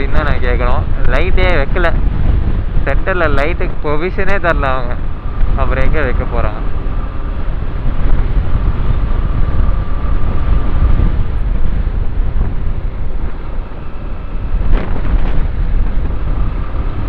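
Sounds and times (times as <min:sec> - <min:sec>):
road noise: 0:00.0 - 0:17.0
wind buffeting microphone: 0:00.0 - 0:17.0
motorcycle engine: 0:06.6 - 0:17.0.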